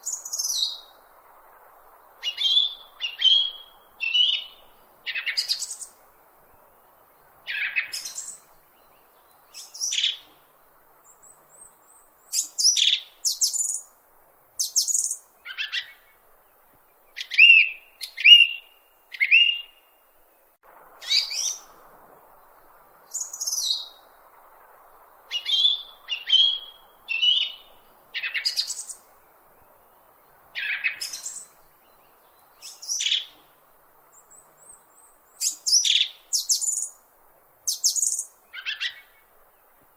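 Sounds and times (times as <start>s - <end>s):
bird chirping: 0.0s - 1.0s, 2.0s - 6.0s, 7.5s - 10.4s, 11.0s - 13.9s, 14.6s - 16.2s, 16.9s - 20.0s, 21.0s - 21.8s, 22.4s - 24.2s, 25.0s - 33.5s, 34.1s - 37.0s, 37.7s - 39.3s.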